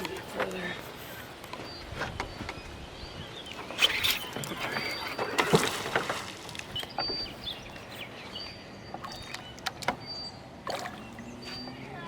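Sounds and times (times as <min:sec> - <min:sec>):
water splash: 0:05.1 - 0:06.8.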